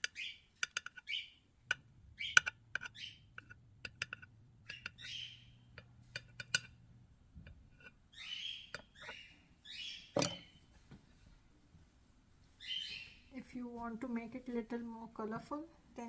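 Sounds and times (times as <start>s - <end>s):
birds chirping and squawking: 0.0s - 1.4s, 2.2s - 3.5s, 4.6s - 5.7s, 8.1s - 10.7s, 12.6s - 13.3s.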